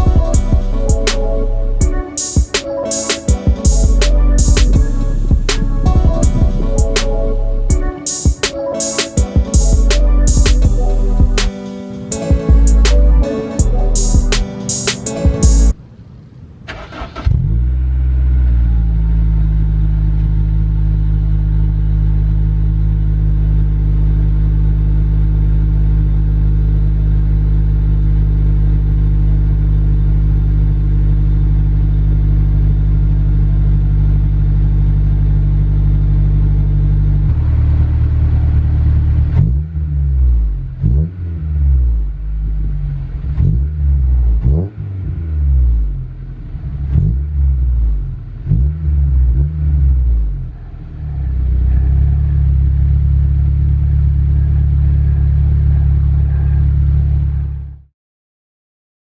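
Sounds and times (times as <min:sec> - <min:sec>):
car engine idling and revving: 0:03.8 - 0:07.9, 0:16.8 - 0:57.8.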